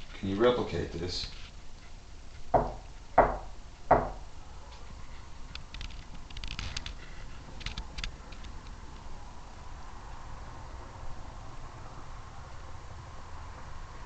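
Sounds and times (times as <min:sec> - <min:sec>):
knuckle knock on wood: 0:02.6 - 0:04.2.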